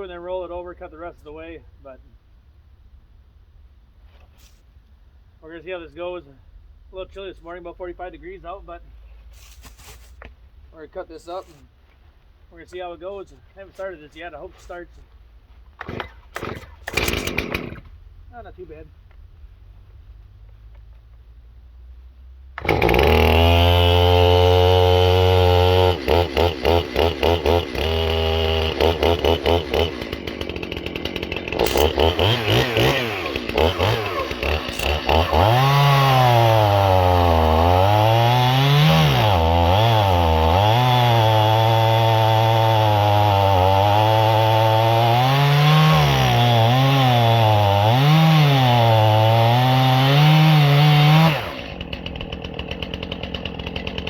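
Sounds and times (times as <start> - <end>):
chainsaw cutting log: 15.7 - 18.0, 22.6 - 54.0.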